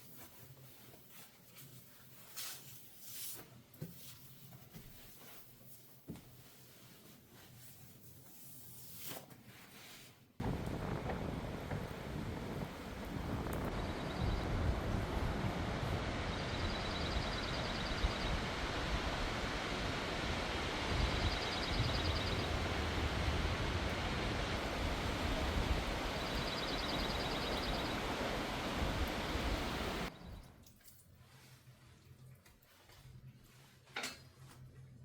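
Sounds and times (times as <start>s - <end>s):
wind buffeting microphone: 10.4s - 30.4s.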